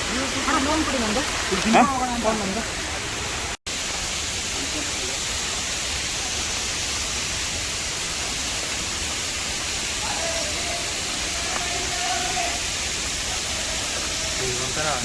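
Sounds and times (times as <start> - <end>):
waterfall rushing: 0.0 - 15.0
faint voice: 10.0 - 12.6.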